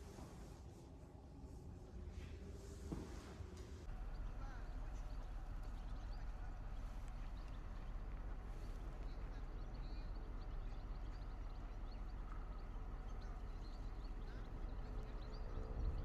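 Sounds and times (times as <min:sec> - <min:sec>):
low outdoor rumble: 0:00.0 - 0:16.0
small birds chirping: 0:03.9 - 0:16.0.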